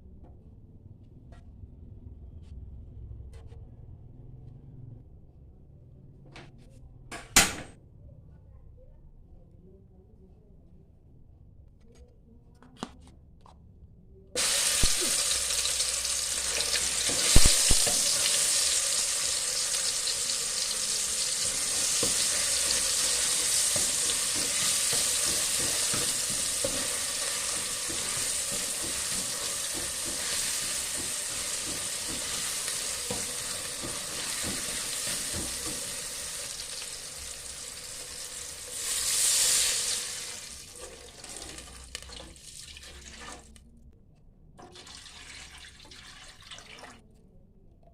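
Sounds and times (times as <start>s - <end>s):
spice paste sizzling in oil: 14.4s - 42.1s
spatula knocking against pan: 23.7s - 36.0s.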